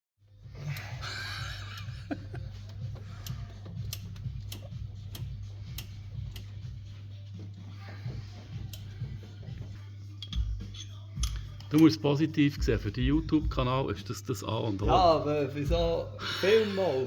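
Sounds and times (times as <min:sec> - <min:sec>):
car engine uneven hum: 0:00.2 - 0:09.9.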